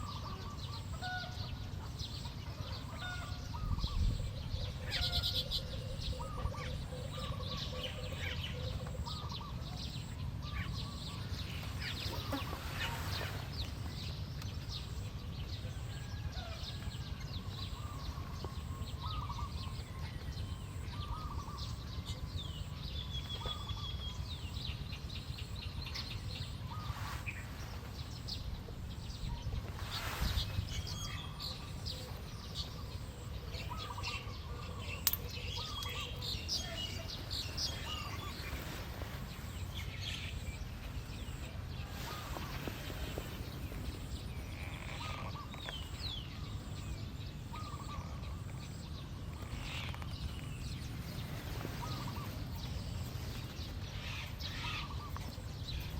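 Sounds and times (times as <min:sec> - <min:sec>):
small birds chirping: 0:00.0 - 0:55.9
rustling noises: 0:29.5 - 0:32.7, 0:36.8 - 0:46.0, 0:49.4 - 0:54.4.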